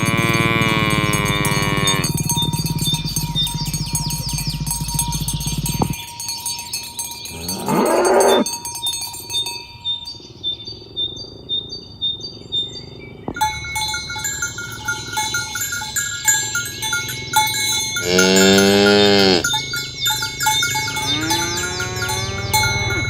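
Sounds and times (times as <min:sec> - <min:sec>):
cow mooing: 0:00.0 - 0:05.9, 0:07.3 - 0:08.5, 0:18.0 - 0:19.6, 0:20.6 - 0:23.0
bells clinking: 0:00.0 - 0:10.9, 0:13.3 - 0:23.0.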